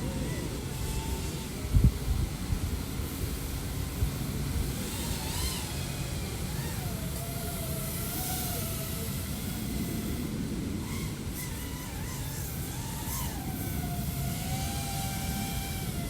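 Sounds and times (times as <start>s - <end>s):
steady rushing noise: 0.0s - 11.5s
quadcopter motors whining: 0.0s - 16.0s.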